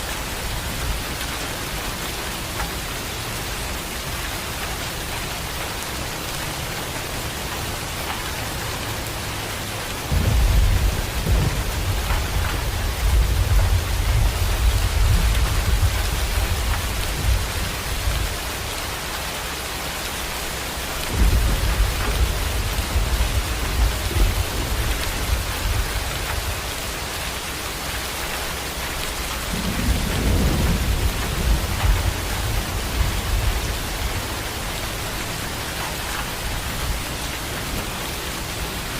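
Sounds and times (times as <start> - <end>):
heavy rain pouring: 0.0 - 38.9
thunder rumbling: 9.5 - 18.7, 21.0 - 26.7, 29.1 - 38.9.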